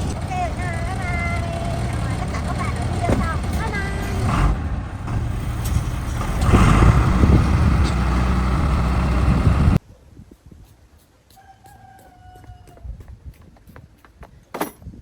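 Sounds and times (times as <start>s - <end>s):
heavy truck engine running: 0.0s - 9.8s
distant rooster crowing: 11.3s - 13.1s.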